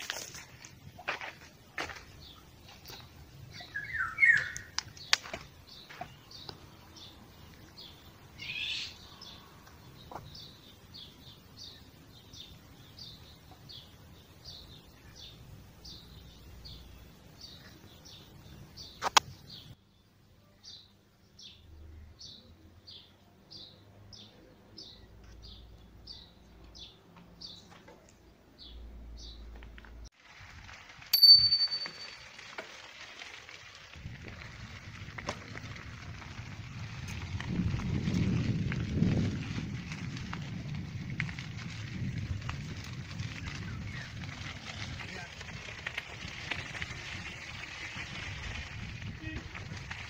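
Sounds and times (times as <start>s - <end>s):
small bird chirping: 2.3s - 19.8s.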